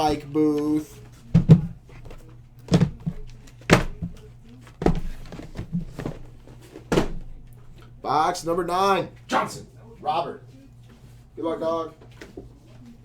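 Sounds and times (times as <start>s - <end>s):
boxes set down on table: 1.2s - 7.5s.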